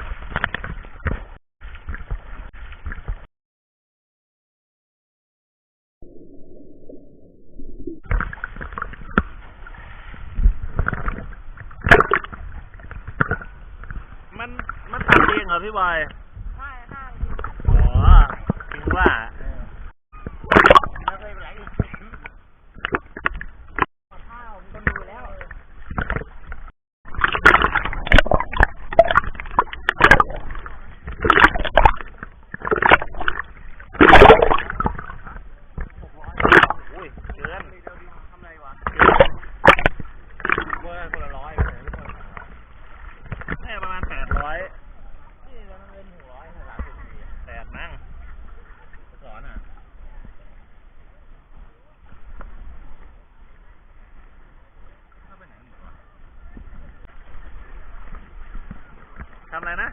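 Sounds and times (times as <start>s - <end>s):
seawater sloshing and splashing: 8.0s - 45.0s.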